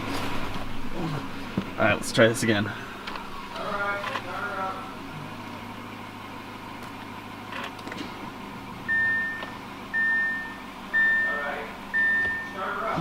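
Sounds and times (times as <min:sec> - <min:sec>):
car warning chime beeping: 0:08.8 - 0:12.9.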